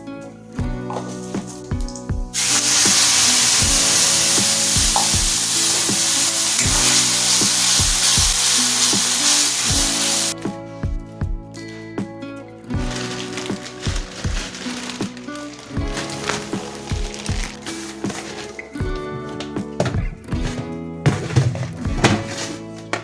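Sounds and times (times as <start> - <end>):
background music: 0.0 - 23.0
food sizzling in hot oil: 2.3 - 10.4.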